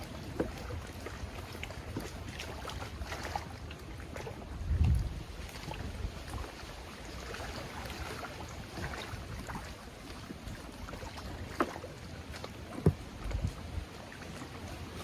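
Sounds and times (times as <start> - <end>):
water lapping at a hull: 0.0 - 15.0
wind buffeting microphone: 4.3 - 7.2, 12.8 - 14.0.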